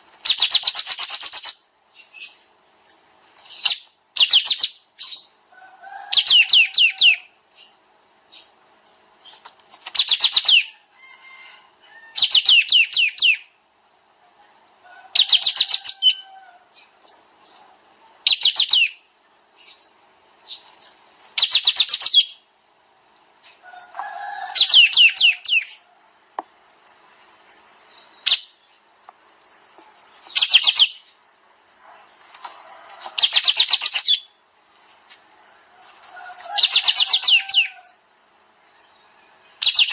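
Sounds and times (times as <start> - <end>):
songbird singing rapid bursts: 0.2 - 5.5, 6.1 - 11.4, 12.1 - 13.6, 15.1 - 17.6, 18.2 - 22.6, 23.3 - 25.8, 26.6 - 39.9.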